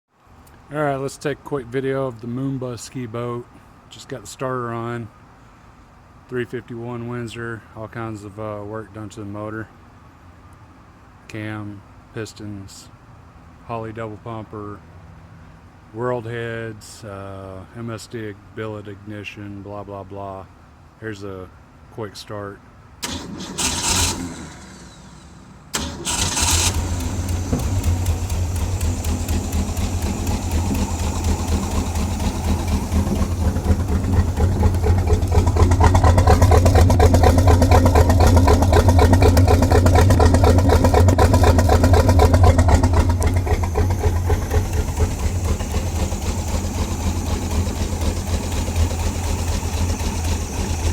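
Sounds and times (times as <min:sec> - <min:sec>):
boat engine starting and running: 0:23.0 - 0:50.9.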